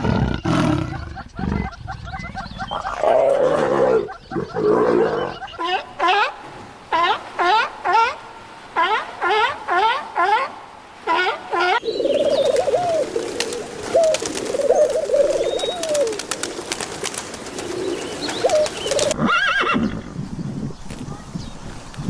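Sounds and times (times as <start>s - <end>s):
higher animal call: 0.0s - 6.3s
low warbling animal calls: 0.0s - 6.3s
farm animal calls: 0.0s - 7.5s.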